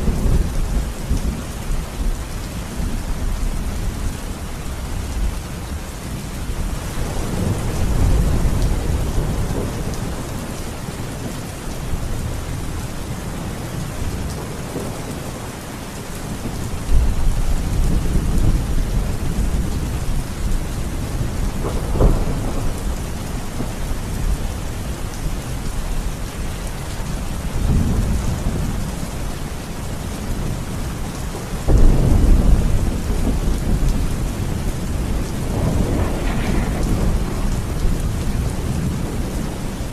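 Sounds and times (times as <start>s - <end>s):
steady rain: 0.0s - 39.9s
rolling thunder: 6.7s - 11.4s, 16.2s - 26.6s, 27.2s - 39.9s
sharp thunder clap: 35.0s - 39.4s.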